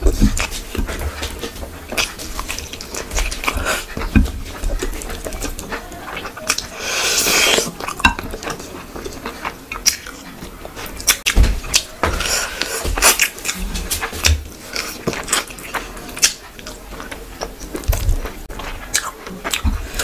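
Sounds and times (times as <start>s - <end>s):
slurping: 0.0s - 10.3s
person chewing and lip-smacking: 0.0s - 20.0s.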